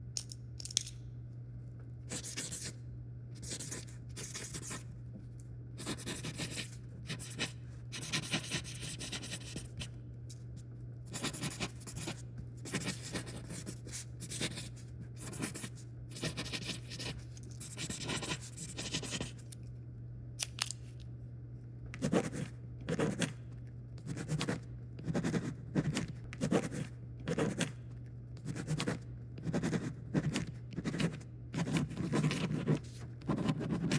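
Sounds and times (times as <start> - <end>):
pen scratching on paper: 2.1 - 2.7, 3.4 - 4.8, 5.8 - 9.9, 11.1 - 19.4, 22.0 - 23.4, 24.0 - 27.8, 28.4 - 33.9.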